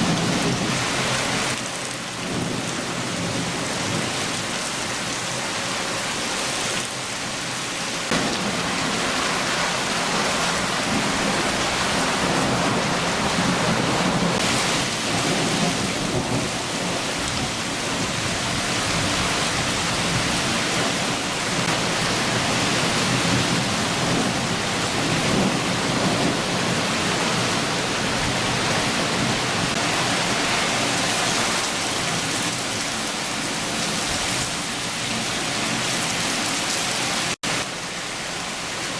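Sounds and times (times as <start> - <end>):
low thunder rumbling: 0.0 - 1.5, 8.1 - 32.6
heavy rain hiss: 0.0 - 38.9.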